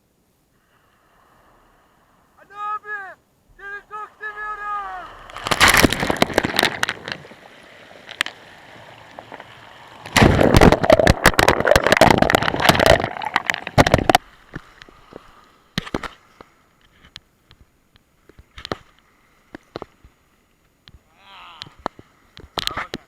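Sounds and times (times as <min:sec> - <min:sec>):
sea wave breaking on shore: 0:00.6 - 0:16.4.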